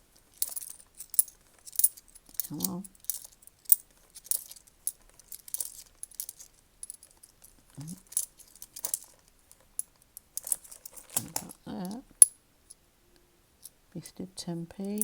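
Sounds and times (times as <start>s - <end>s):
coins clinking: 0.3s - 11.6s, 14.8s - 15.0s.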